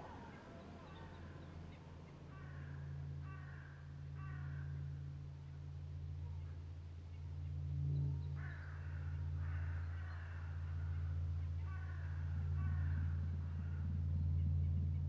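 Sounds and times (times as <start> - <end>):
bird calling: 0.0 - 4.8, 8.1 - 14.5
steady low hum: 0.0 - 15.0.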